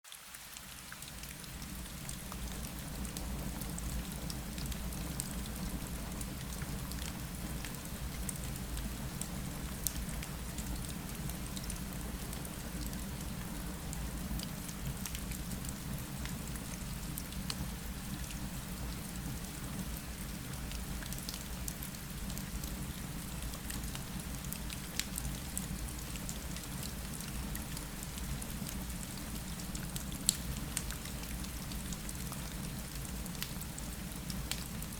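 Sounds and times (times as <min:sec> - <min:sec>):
small ticks and crackles: 0:19.9 - 0:34.9.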